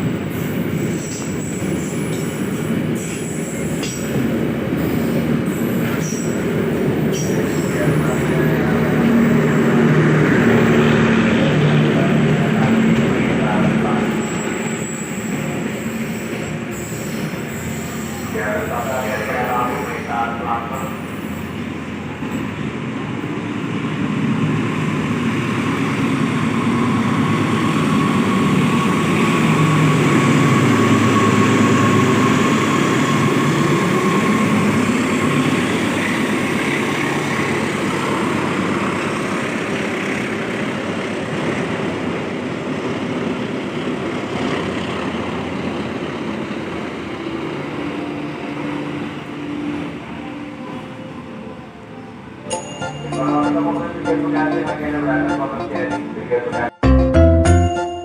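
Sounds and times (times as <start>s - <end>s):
train rumbling past: 0.0s - 56.7s
steady high tone: 47.6s - 58.0s.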